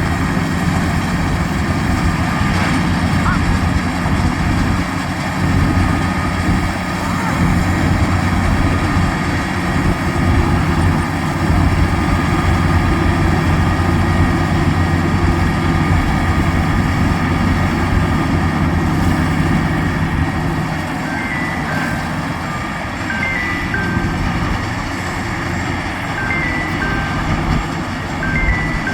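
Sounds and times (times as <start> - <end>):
diesel engine droning: 0.0 - 28.9
short high tones: 20.9 - 28.9.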